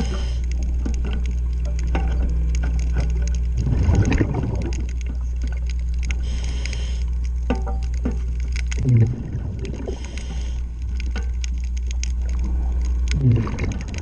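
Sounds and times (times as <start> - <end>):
regulator hiss: 0.0 - 0.7, 6.1 - 7.2, 9.8 - 10.8
low underwater hum: 0.0 - 14.0
underwater clicks and knocks: 0.0 - 14.0
diver exhaling bubbles: 3.6 - 4.9, 8.8 - 10.6, 13.1 - 14.0.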